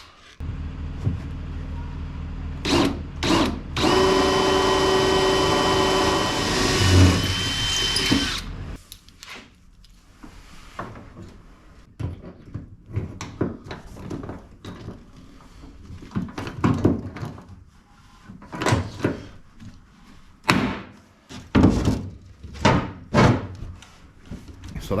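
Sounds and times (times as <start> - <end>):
power drill whining: 2.6 - 8.8.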